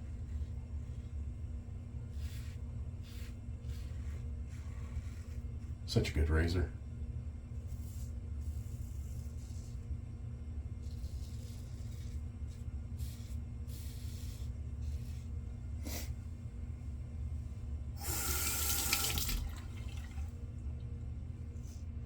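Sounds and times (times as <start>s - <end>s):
steady low hum: 0.0s - 22.0s
sink tap running: 18.0s - 20.3s.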